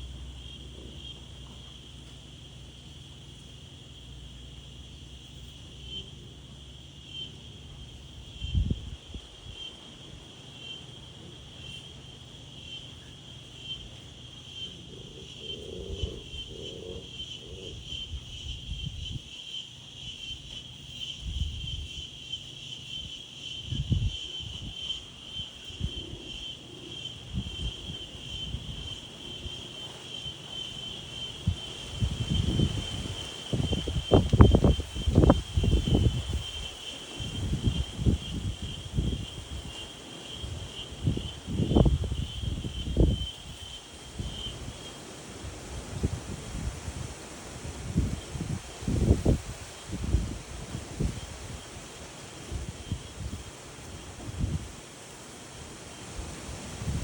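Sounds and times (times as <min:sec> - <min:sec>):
insects trilling: 0:00.0 - 0:57.0
wind gusts on microphone: 0:08.0 - 0:10.3, 0:15.2 - 0:57.0.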